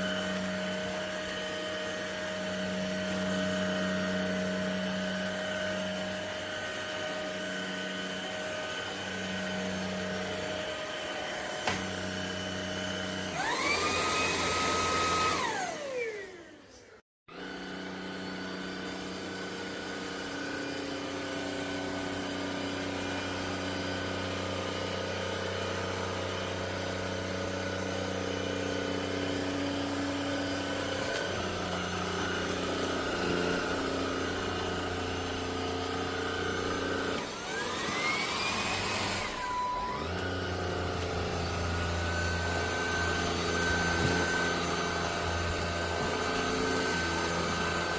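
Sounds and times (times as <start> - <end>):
vacuum cleaner motor hum: 0.0 - 47.9
motor whine rising in pitch: 6.4 - 18.6.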